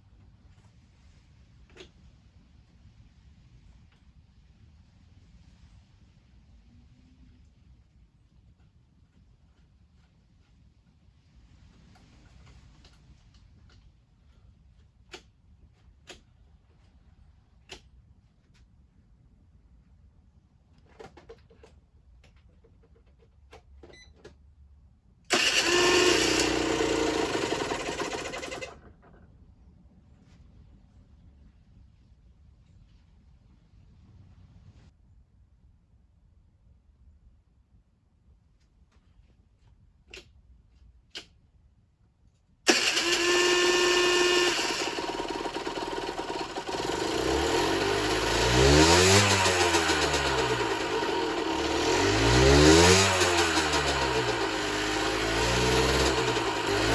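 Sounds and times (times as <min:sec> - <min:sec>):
two-stroke engine running: 0:25.3 - 0:28.9, 0:42.7 - 0:56.9.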